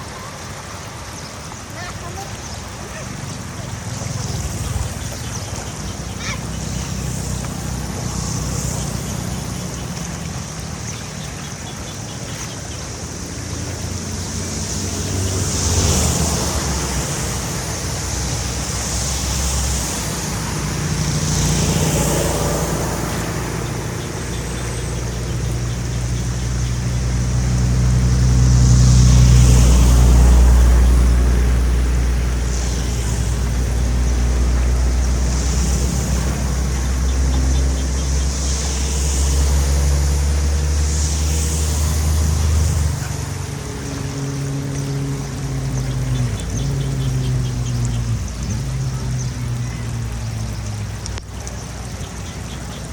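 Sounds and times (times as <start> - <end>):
rushing hiss: 0.0 - 52.9
large engine running: 13.0 - 52.9.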